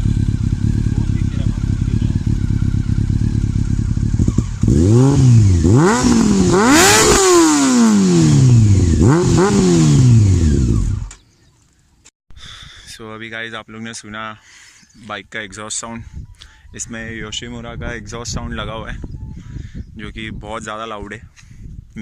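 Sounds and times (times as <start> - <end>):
motorcycle engine idling and revving: 0.0 - 11.2.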